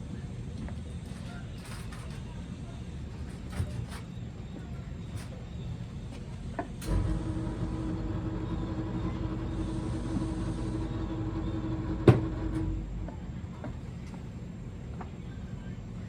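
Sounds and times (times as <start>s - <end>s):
motor humming: 6.8s - 13.1s.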